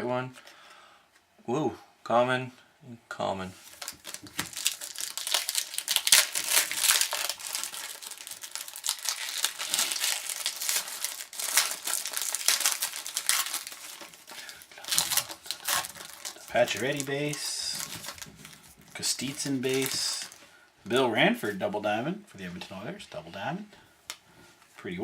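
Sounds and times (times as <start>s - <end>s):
wrapper crinkling and tearing: 3.6s - 20.4s.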